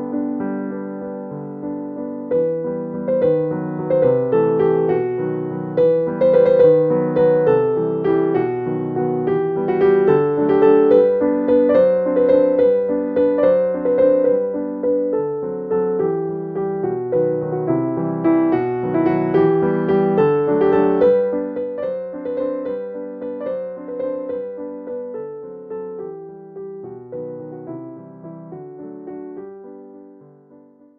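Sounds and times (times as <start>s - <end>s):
piano music: 0.0s - 30.9s.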